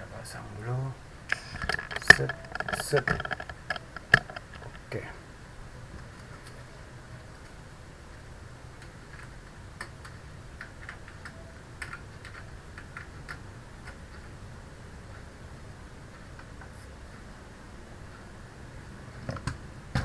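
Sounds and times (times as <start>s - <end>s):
steady low hum: 0.0s - 20.0s
keyboard keys clicking: 1.3s - 4.9s, 8.8s - 14.3s.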